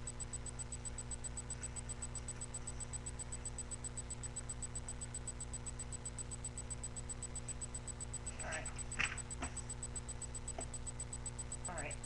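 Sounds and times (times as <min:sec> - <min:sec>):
electrical hum and hiss: 0:00.0 - 0:12.0
faint high-pitched ticking: 0:00.0 - 0:12.0.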